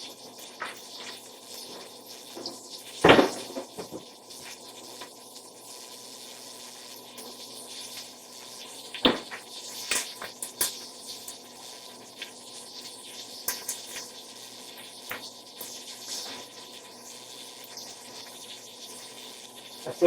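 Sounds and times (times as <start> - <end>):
oil sizzling in a pot: 0.0 - 20.0.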